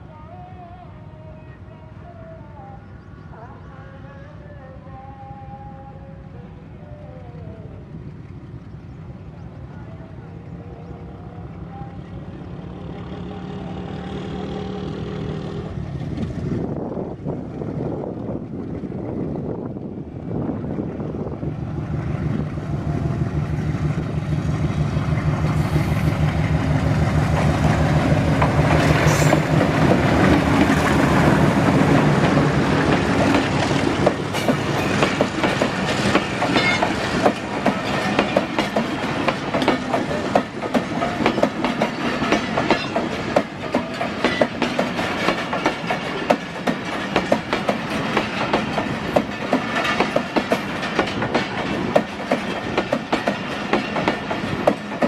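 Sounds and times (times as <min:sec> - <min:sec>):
diesel locomotive engine droning: 0:00.0 - 0:55.0
train wheels clickety-clack: 0:22.2 - 0:55.0.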